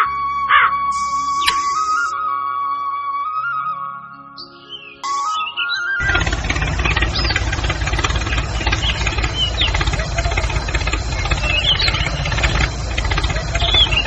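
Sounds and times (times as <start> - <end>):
flute music: 0.0 - 14.0
engine idling with knocking: 6.0 - 14.0.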